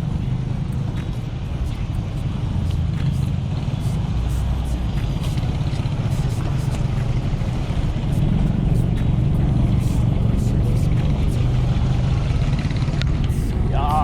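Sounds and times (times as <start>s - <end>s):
wind rumbling over microphone: 0.0s - 14.0s.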